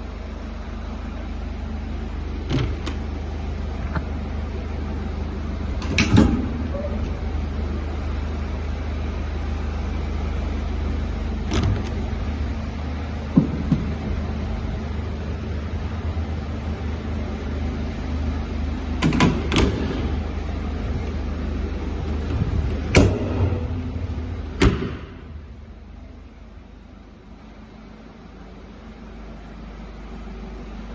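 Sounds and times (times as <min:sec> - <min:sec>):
diesel van engine running: 0:00.0 - 0:30.9
sharp clicks and knocks: 0:13.3 - 0:14.0, 0:19.0 - 0:20.2.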